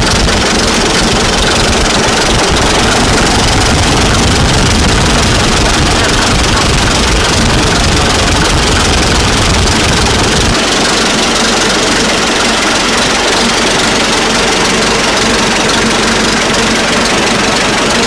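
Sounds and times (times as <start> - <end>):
tractor engine rumbling: 0.0 - 18.0.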